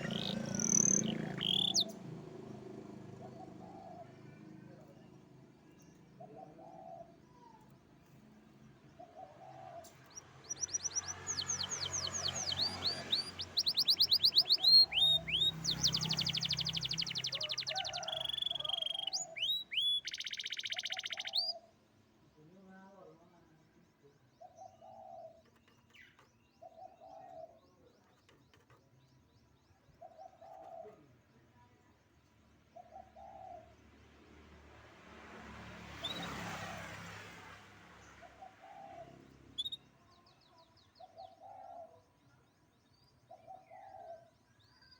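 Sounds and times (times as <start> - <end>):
canary singing: 0.0 - 4.2, 10.0 - 21.7, 38.4 - 42.0.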